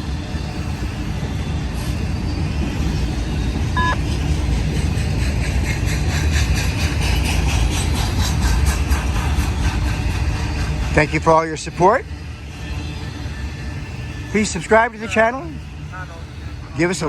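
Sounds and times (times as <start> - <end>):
freight train rumbling past: 0.0 - 17.0
rhythmic clatter of train wheels: 0.0 - 17.0
two-tone electronic beep: 3.8 - 4.0.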